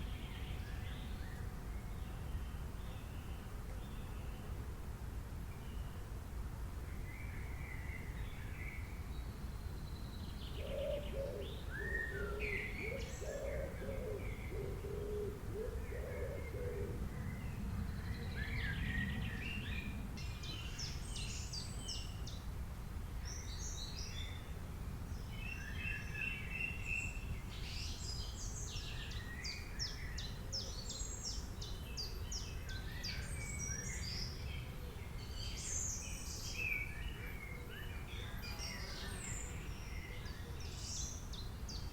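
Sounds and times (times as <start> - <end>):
wild birds calling and singing: 9.6 - 22.4, 25.2 - 41.9.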